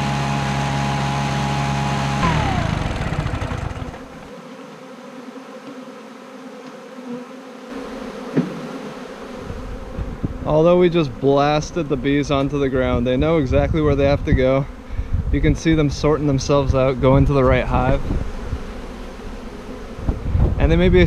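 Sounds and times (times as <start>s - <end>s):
blower engine running: 0.0s - 4.3s
honey bees buzzing: 0.0s - 21.0s.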